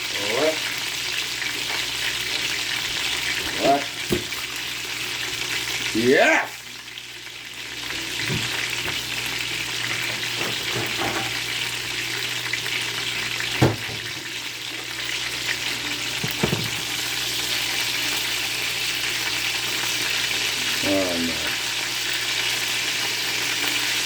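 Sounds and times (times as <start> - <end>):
chicken sizzling in hot oil: 0.0 - 24.0.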